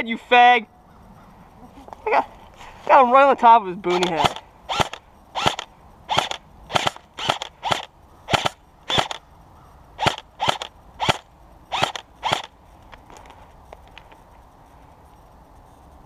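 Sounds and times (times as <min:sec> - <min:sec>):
airsoft rifle single shots: 0:03.9 - 0:09.2, 0:10.0 - 0:12.5.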